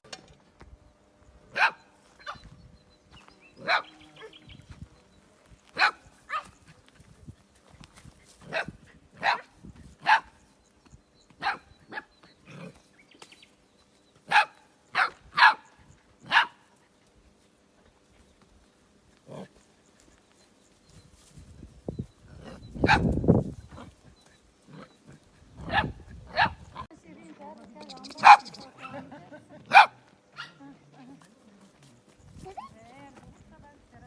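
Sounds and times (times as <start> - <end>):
small dogs barking: 1.5 - 2.5, 3.6 - 4.5, 5.7 - 6.9, 8.4 - 10.4, 11.4 - 12.8, 14.2 - 16.8, 22.4 - 24.0, 24.7 - 26.9, 28.1 - 30.7.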